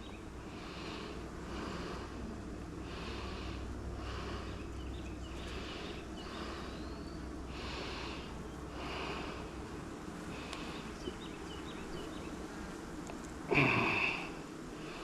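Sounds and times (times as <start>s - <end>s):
steady low hum: 0.0s - 15.0s
person breathing hard: 0.4s - 4.8s, 5.4s - 9.6s, 13.5s - 15.0s.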